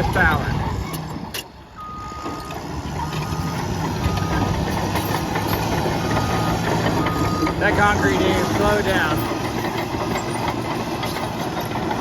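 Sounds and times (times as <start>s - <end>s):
bulldozer diesel engine under load: 0.0s - 12.0s
backup alarm beeping: 1.8s - 2.6s, 3.2s - 4.5s, 6.1s - 7.6s.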